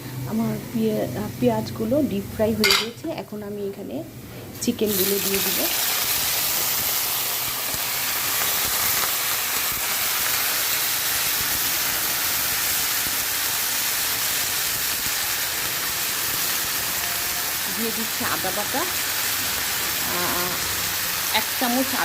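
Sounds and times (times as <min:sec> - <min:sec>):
chicken frying in oil sizzling: 0:04.8 - 0:22.0.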